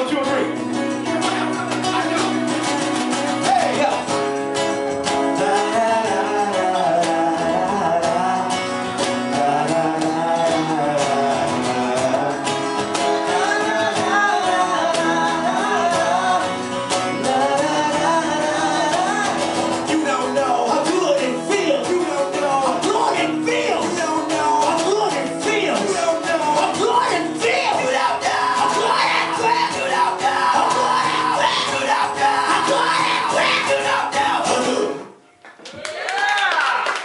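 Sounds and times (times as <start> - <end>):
bending lead melody: 0.0 - 34.8
strummed acoustic guitar: 0.0 - 35.1
hand percussion beat: 0.4 - 34.8.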